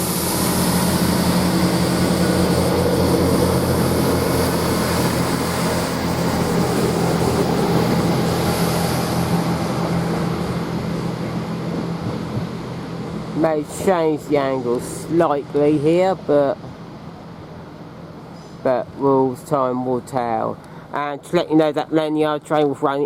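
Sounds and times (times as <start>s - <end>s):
wide hiss: 0.0s - 16.6s
diesel train engine droning: 0.0s - 19.4s.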